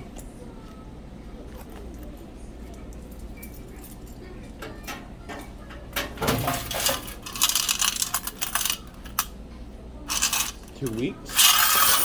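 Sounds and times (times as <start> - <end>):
coins clinking and rattling: 4.8 - 9.3, 10.1 - 12.0.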